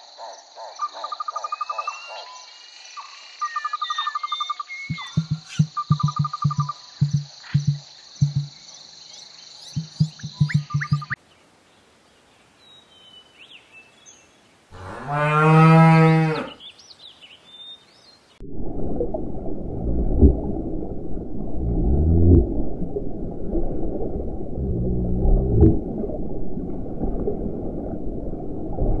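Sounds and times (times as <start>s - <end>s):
bird chirps: 1.1s - 11.2s
underwater bubbling: 4.9s - 8.6s, 9.7s - 11.2s, 18.4s - 29.0s.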